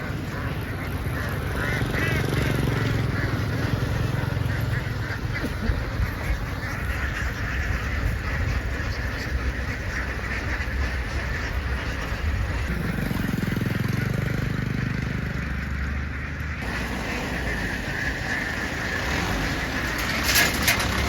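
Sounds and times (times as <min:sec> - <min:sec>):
flock of ducks chattering: 0:00.0 - 0:21.0
vehicle engine running: 0:00.0 - 0:21.0.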